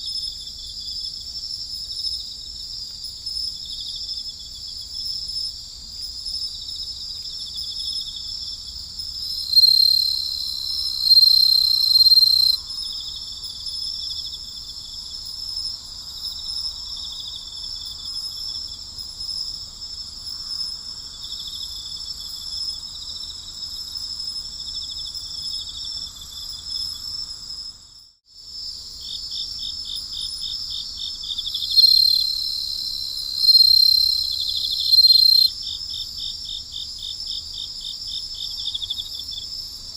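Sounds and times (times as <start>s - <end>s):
crickets trilling: 1.6s - 39.9s
louder higher cricket trill: 9.3s - 12.6s, 31.6s - 35.5s.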